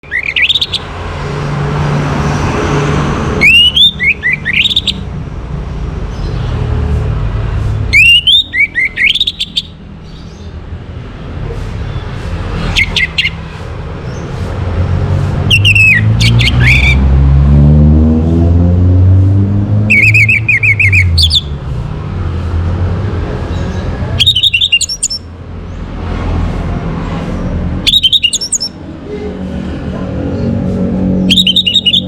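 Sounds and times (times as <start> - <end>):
thrush singing whistled notes: 0.0 - 1.2, 3.4 - 5.1, 7.9 - 10.3, 12.5 - 13.5, 15.5 - 17.1, 19.9 - 21.6, 24.2 - 25.3, 27.8 - 28.8, 31.2 - 32.0.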